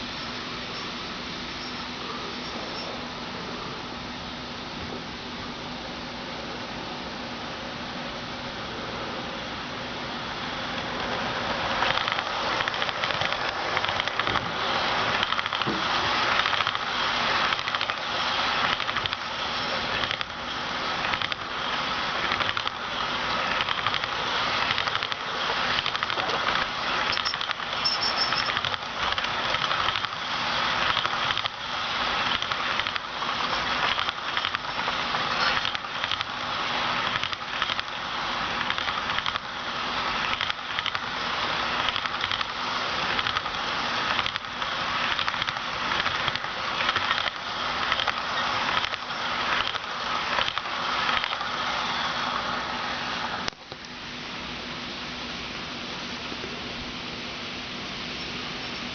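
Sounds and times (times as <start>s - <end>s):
faint motor hum: 0.0s - 58.9s
model train wheels rattling on rail: 10.1s - 53.5s
clicks over rail joints: 11.8s - 16.8s, 21.0s - 21.5s, 23.6s - 30.2s, 41.8s - 51.5s.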